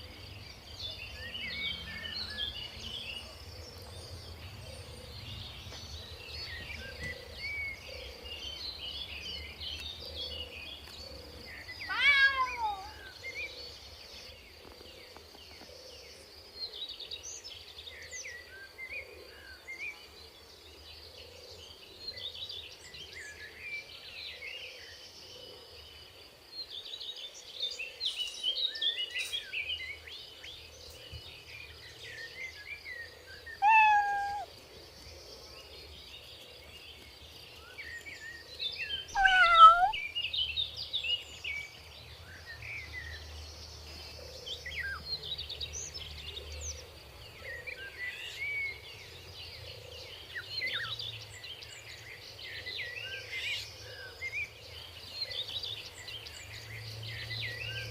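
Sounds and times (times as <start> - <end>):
small birds chirping: 0.0 - 57.9
kitten mewing: 11.9 - 13.0, 33.6 - 34.5, 39.2 - 40.0.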